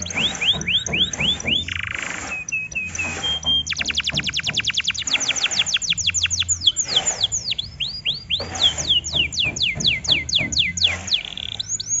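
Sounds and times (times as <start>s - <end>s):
canary singing trills: 0.0s - 12.0s.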